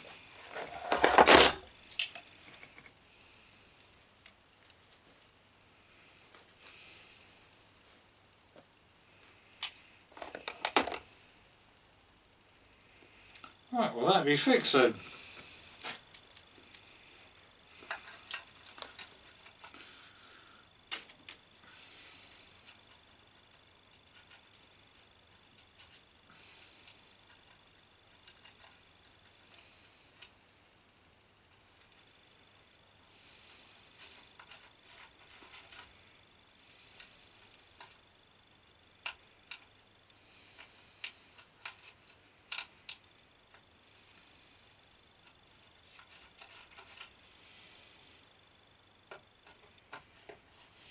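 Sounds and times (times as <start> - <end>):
soft hiss: 0.0 - 50.9
small tools clicking and tapping: 0.9 - 3.0, 26.8 - 29.3, 40.6 - 43.7, 49.1 - 50.4
short rustling hiss: 14.2 - 16.1.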